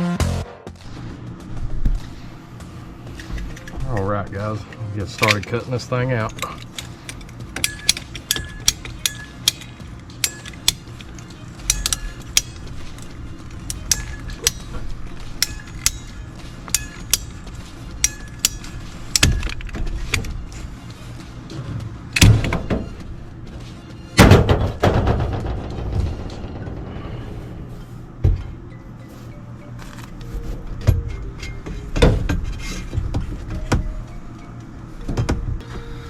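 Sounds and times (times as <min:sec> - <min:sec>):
background music: 0:00.0 - 0:36.0
steady low hum: 0:00.2 - 0:36.0
pipe cutter ratchet clicking: 0:06.3 - 0:14.8, 0:15.4 - 0:17.4, 0:18.0 - 0:20.2.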